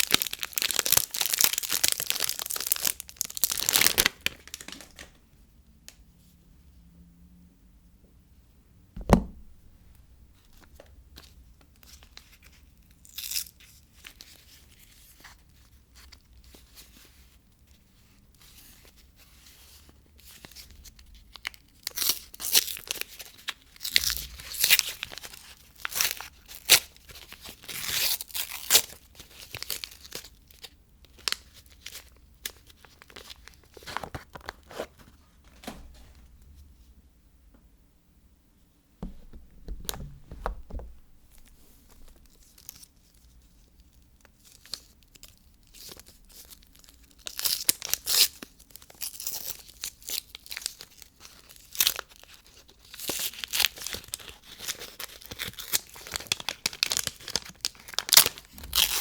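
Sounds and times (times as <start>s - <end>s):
packaging crinkling: 0.0s - 5.2s, 21.4s - 34.8s, 39.0s - 42.9s, 44.5s - 59.0s
sharp knock: 9.0s - 9.9s, 39.0s - 41.3s.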